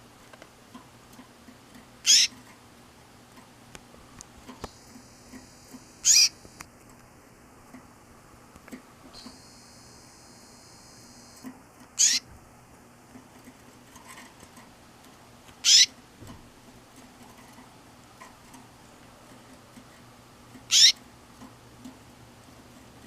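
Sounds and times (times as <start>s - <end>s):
faint steady hum: 0.0s - 23.0s
canary chirping call notes: 2.0s - 2.5s, 6.0s - 6.5s, 12.0s - 12.3s, 15.6s - 16.0s, 20.7s - 21.0s.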